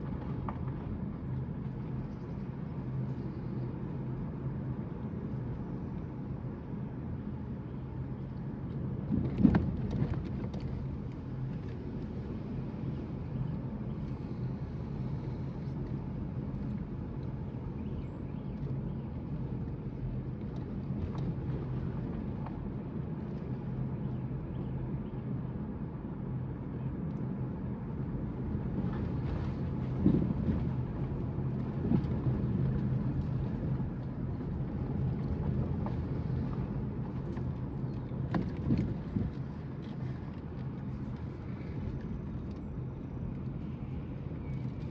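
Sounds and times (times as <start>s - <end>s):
car engine and road hum: 0.0s - 44.9s.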